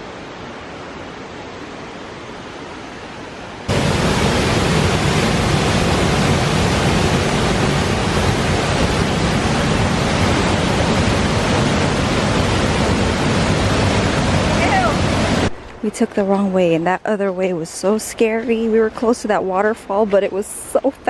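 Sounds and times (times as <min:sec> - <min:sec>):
waterfall water rushing: 0:00.0 - 0:15.8.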